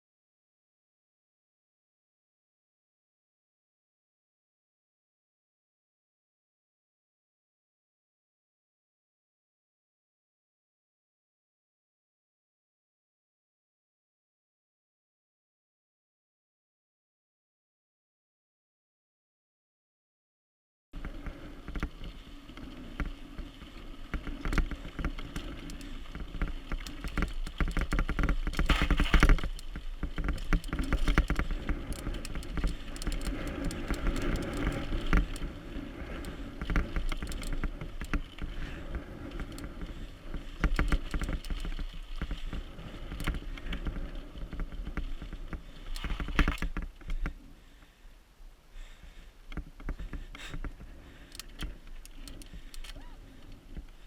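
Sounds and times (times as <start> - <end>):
bike rattling and knocking: 21.0 - 47.3, 49.1 - 53.2
bike tyres on dirt trail: 21.0 - 54.0.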